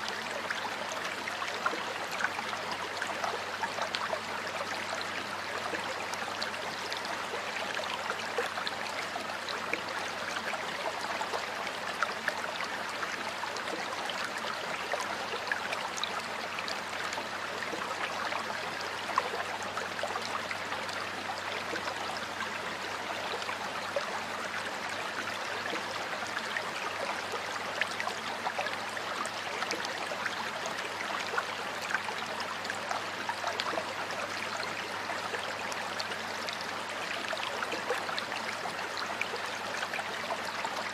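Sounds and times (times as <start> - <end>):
stream water flowing over stones: 0.0 - 40.9.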